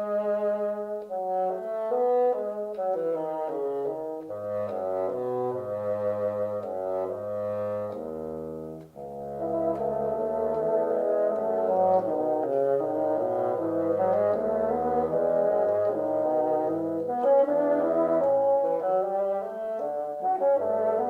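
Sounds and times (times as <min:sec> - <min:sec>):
brass playing slow melody: 0:00.0 - 0:21.0.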